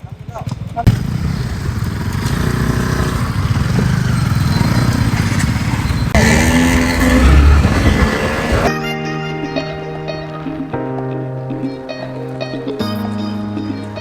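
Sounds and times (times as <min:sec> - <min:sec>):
motorcycle engine revving: 0:00.9 - 0:08.7.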